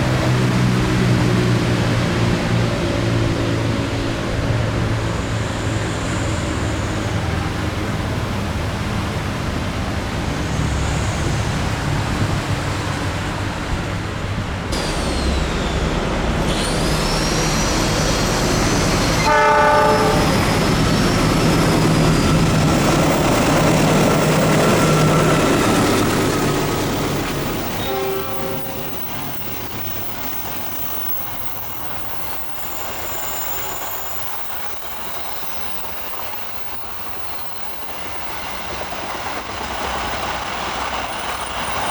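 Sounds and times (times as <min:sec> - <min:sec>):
diesel locomotive engine drone: 0:00.0 - 0:41.9
train horn blast: 0:18.2 - 0:21.2, 0:27.1 - 0:29.5.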